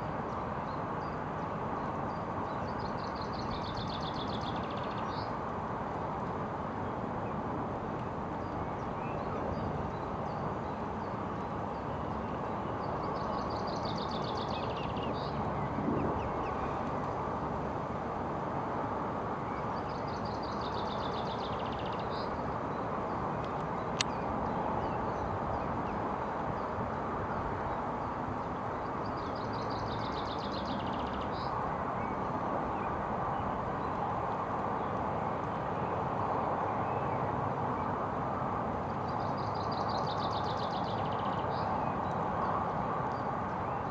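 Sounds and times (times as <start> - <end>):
outdoor background noise: 0.0 - 43.9
small bird singing: 2.1 - 5.4, 8.4 - 16.8, 19.4 - 22.8, 29.0 - 32.2, 39.0 - 42.2.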